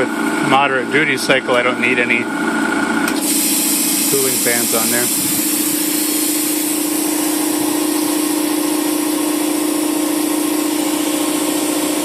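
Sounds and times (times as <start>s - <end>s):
air compressor humming: 0.0s - 12.0s
airy hiss: 3.2s - 12.0s.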